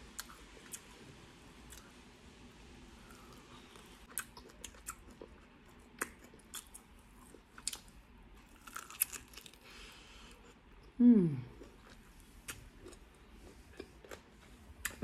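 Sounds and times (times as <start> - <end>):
person chewing prawn: 3.1 - 10.9, 11.5 - 15.0.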